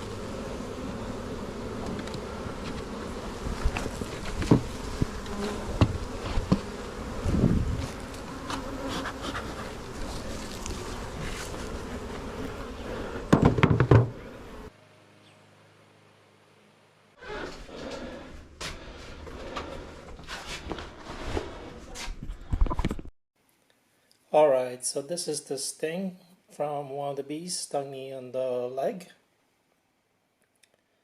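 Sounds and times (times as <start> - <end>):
honeybees buzzing: 0.0 - 14.7
knocks and bumps: 3.5 - 6.7, 13.2 - 14.3.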